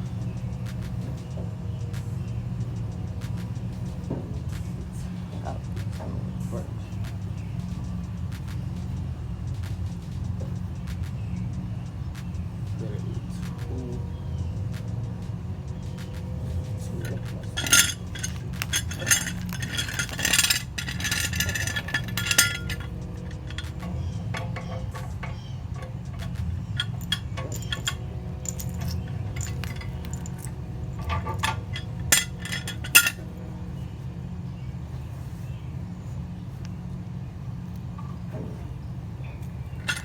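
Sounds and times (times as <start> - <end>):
steady low hum: 0.0 - 40.0
metal exhaust clinking and rattling: 15.7 - 33.9, 37.9 - 40.0.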